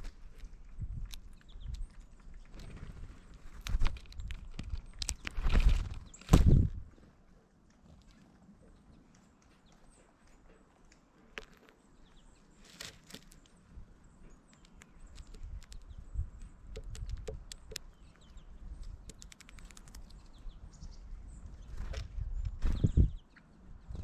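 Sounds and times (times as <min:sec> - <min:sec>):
birds tapping and pecking: 0:00.0 - 0:20.6
bird chirps: 0:07.9 - 0:24.0.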